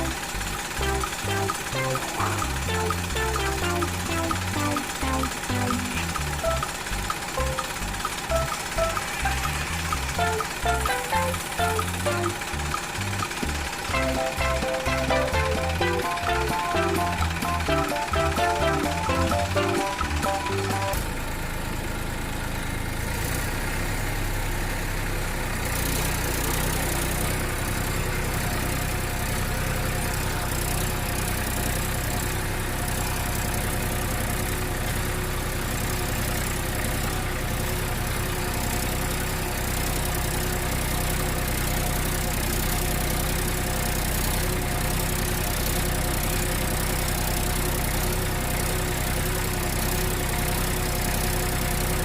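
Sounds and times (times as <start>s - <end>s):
tractor engine idling: 0.0s - 21.3s.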